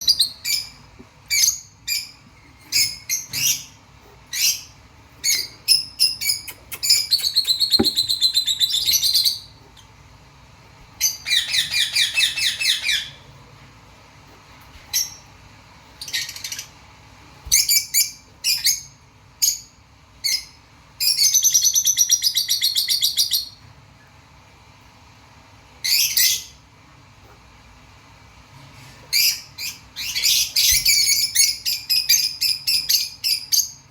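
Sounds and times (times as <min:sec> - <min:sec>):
cockatiel chirping and trilling: 0:00.0 - 0:09.5, 0:11.0 - 0:13.2, 0:29.1 - 0:33.8.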